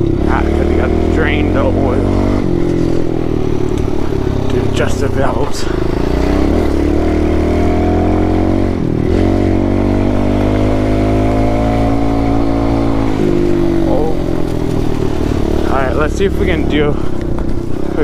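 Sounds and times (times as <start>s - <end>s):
motorbike engine revving: 0.0s - 18.0s.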